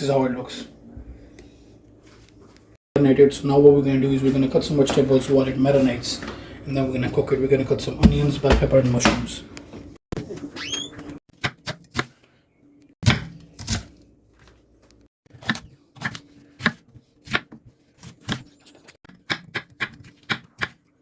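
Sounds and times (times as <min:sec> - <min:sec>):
knife chopping on cutting board: 0:13.0 - 0:13.8, 0:15.4 - 0:18.5, 0:19.1 - 0:20.8.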